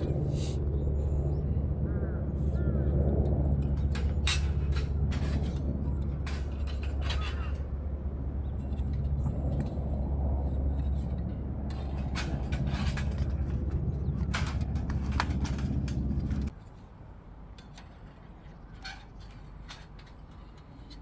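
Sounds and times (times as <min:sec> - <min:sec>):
low engine drone: 0:00.0 - 0:16.5
metal plates clicking: 0:03.7 - 0:07.8, 0:10.8 - 0:16.5.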